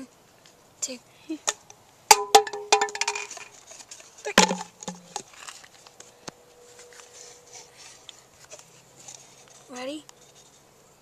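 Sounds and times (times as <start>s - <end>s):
container rattling knocks: 2.1s - 3.5s, 4.3s - 5.3s.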